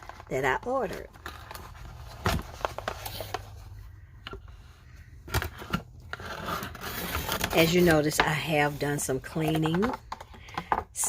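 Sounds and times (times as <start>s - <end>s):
package being handled and opened: 0.0s - 8.4s.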